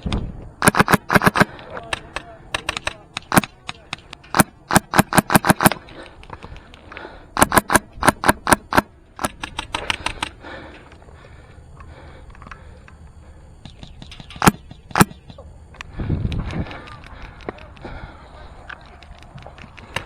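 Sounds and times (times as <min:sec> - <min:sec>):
airsoft rifle shots: 0:00.6 - 0:05.8, 0:07.4 - 0:10.4, 0:14.4 - 0:15.3.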